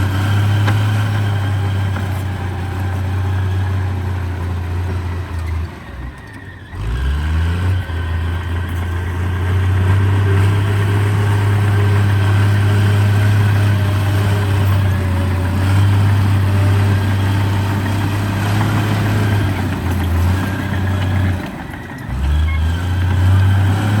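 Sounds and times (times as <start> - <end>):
heavy diesel engine revving: 0.0 - 24.0.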